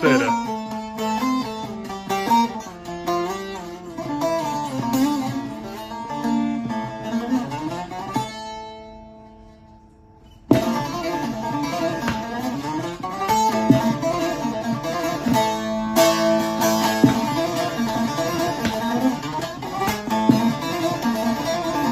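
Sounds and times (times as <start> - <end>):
long-necked lute picked melody: 0.0 - 21.9.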